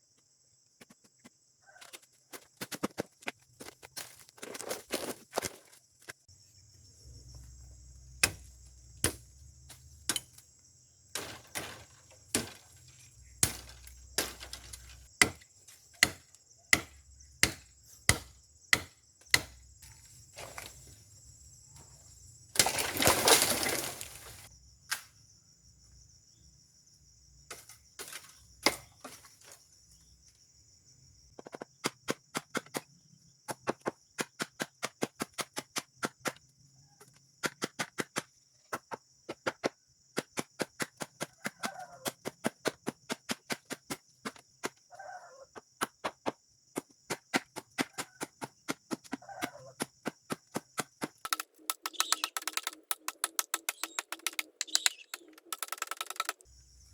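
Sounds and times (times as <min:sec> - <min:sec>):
insects droning: 0:00.0 - 0:56.9
blade chopping bamboo: 0:08.2 - 0:10.4, 0:11.1 - 0:19.6, 0:22.6 - 0:24.5, 0:27.5 - 0:29.2, 0:33.5 - 0:36.4, 0:45.7 - 0:56.5.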